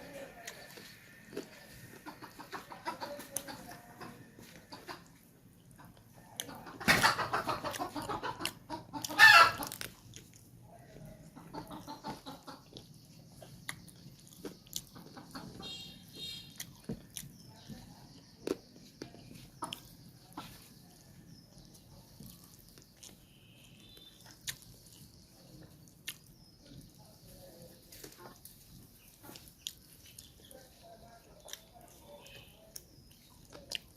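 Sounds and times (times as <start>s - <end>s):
chickens clucking and cackling: 0.0s - 23.0s, 24.2s - 33.9s.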